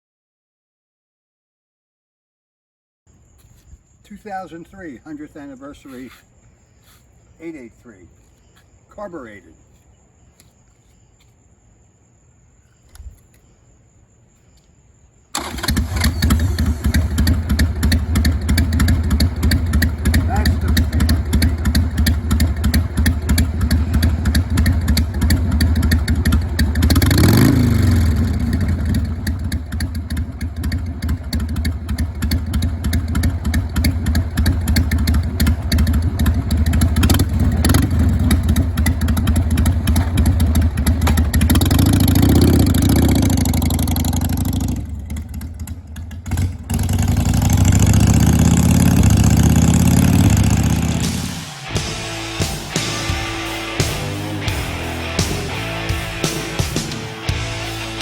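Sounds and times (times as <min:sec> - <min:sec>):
motorcycle engine revving: 0:15.4 - 0:58.0.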